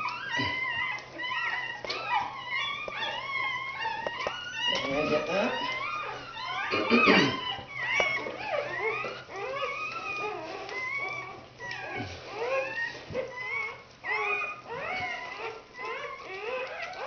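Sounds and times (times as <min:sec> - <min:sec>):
puppies squeaking and crying: 0:00.0 - 0:17.0.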